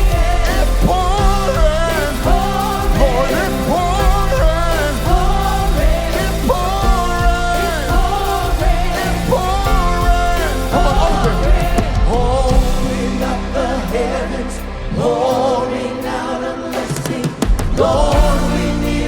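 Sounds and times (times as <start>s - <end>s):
person singing long held notes: 0.0s - 19.0s
worship band playing: 0.0s - 19.0s.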